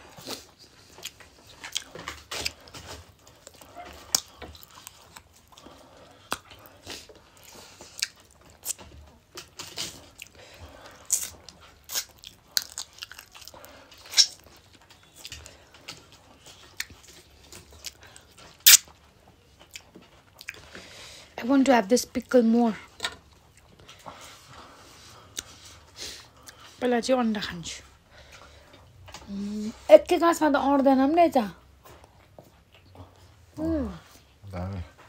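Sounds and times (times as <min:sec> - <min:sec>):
chewing and crunching: 0:00.0 - 0:21.3, 0:22.0 - 0:26.8, 0:31.6 - 0:35.0
crisp clicks and wet smacks: 0:00.2 - 0:05.6, 0:06.2 - 0:10.4, 0:11.0 - 0:19.0.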